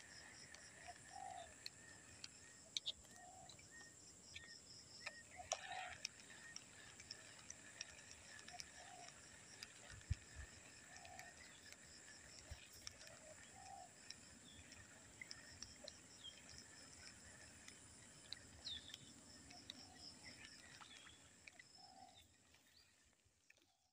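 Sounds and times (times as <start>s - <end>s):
low bird coos: 0.7s - 1.5s, 3.2s - 3.5s, 5.3s - 6.5s, 8.3s - 9.2s, 10.8s - 11.6s, 12.5s - 13.9s.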